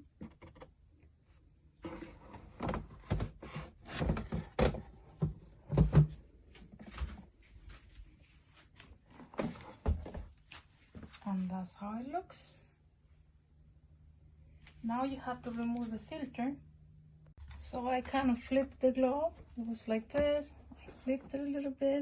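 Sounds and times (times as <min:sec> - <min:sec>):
plastic globe knocking and scraping: 0:00.0 - 0:01.0, 0:01.8 - 0:07.2.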